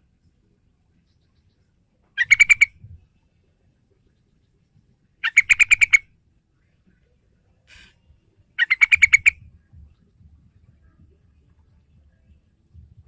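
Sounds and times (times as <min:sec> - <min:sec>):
bird chattering call: 0:02.2 - 0:02.7, 0:05.2 - 0:06.0, 0:08.6 - 0:09.4.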